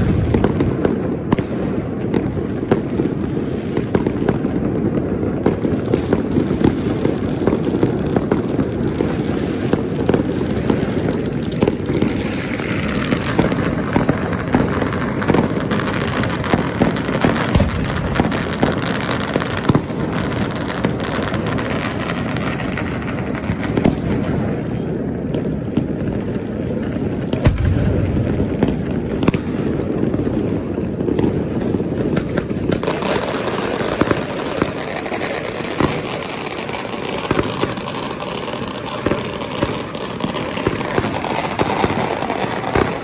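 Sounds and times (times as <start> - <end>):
firecrackers popping: 0.0 - 43.0.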